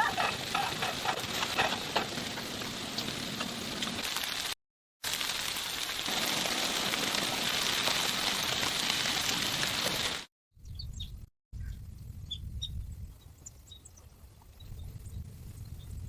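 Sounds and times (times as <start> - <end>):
rain pattering on a surface: 0.0 - 10.3.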